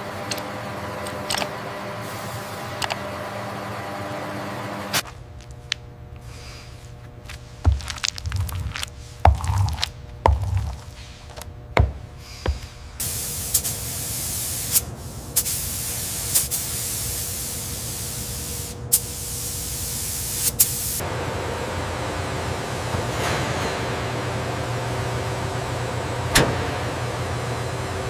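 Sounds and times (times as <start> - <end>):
spraying hiss: 12.3 - 21.0.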